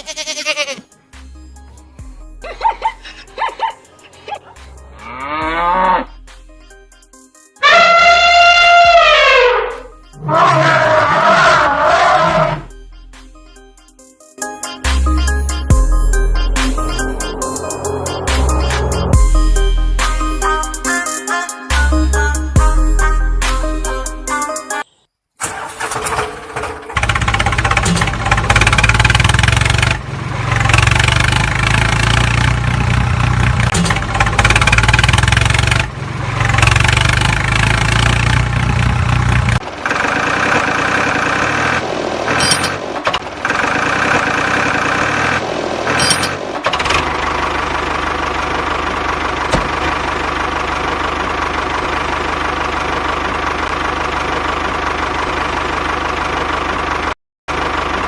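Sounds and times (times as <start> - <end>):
tractor engine idling: 1.1 - 5.1, 25.4 - 58.0.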